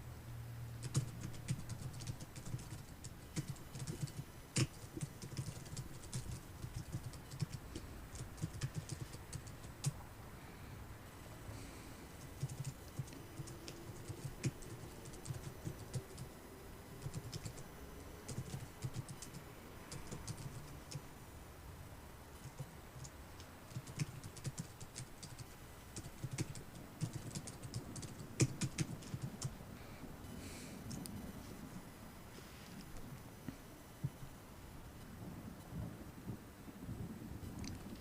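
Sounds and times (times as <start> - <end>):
city ambience: 0.0 - 38.0
typing on a computer keyboard: 0.8 - 10.0, 12.2 - 16.3, 17.0 - 21.0, 22.4 - 29.6.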